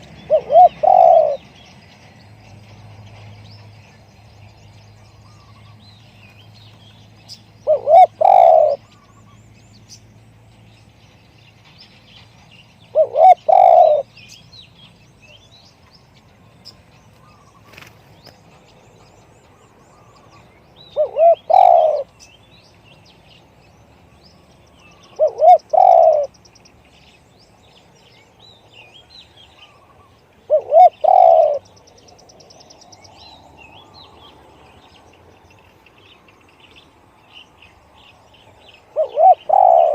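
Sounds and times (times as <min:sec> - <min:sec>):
small birds chirping faintly: 0:00.0 - 0:39.9
dove cooing: 0:00.2 - 0:01.4, 0:07.6 - 0:08.9, 0:12.9 - 0:14.1, 0:21.0 - 0:22.1, 0:25.1 - 0:26.3, 0:30.5 - 0:31.6, 0:38.9 - 0:39.9.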